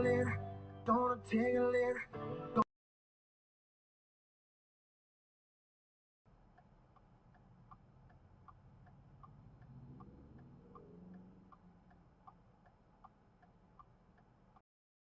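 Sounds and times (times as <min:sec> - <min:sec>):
turn signal indicator clicking: 0:06.5 - 0:14.6
low engine hum: 0:06.9 - 0:13.9.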